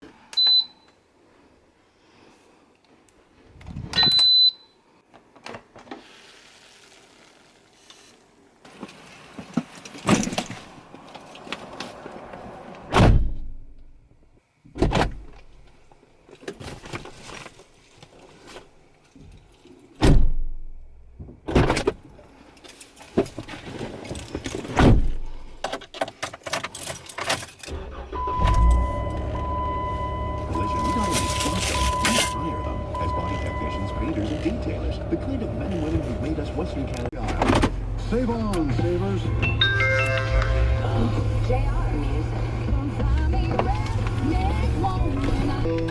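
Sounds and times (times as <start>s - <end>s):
rustling handling noise: 30.6s - 32.4s.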